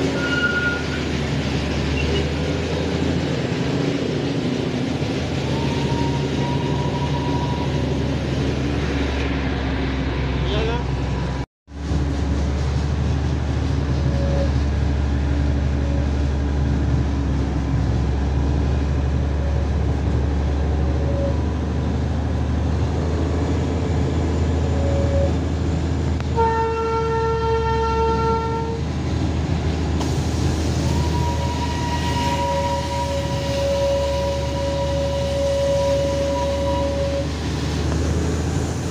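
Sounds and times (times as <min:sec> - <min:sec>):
train rumbling: 0:00.0 - 0:38.9
train horn: 0:00.1 - 0:01.0, 0:05.6 - 0:07.8, 0:26.3 - 0:28.8, 0:30.8 - 0:37.4.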